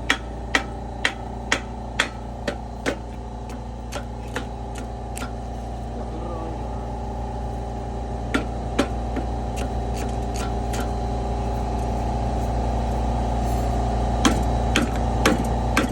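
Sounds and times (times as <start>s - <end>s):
mechanical hum: 0.0s - 15.9s
sharp metallic taps: 0.1s - 5.4s.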